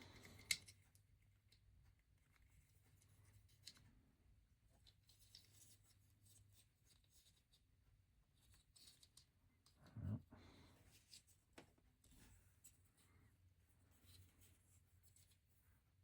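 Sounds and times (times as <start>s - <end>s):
low steady hum: 9.7s - 10.8s.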